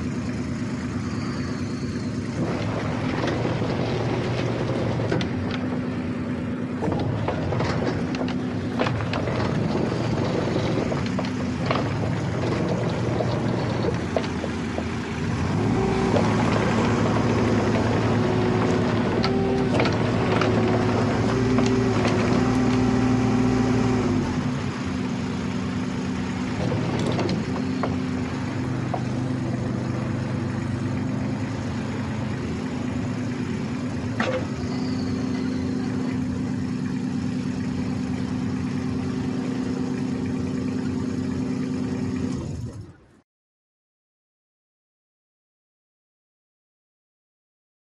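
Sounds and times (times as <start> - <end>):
excavator diesel engine idling: 0.0 - 43.1.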